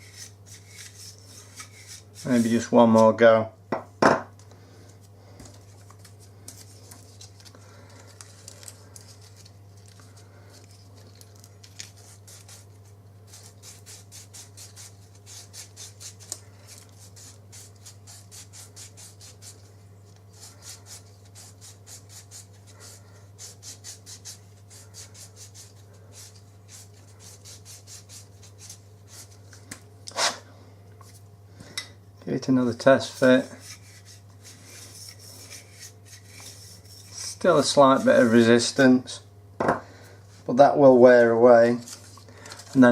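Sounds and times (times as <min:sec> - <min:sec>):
sandpaper rasping strokes: 0:00.0 - 0:02.7, 0:11.9 - 0:12.7, 0:13.3 - 0:19.6, 0:20.3 - 0:29.3, 0:33.0 - 0:38.5
steady low hum: 0:00.0 - 0:42.9.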